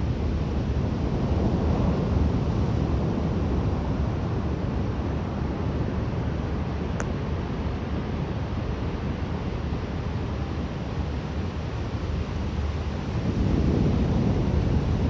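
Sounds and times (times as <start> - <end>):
wind buffeting microphone: 12.4 - 15.0.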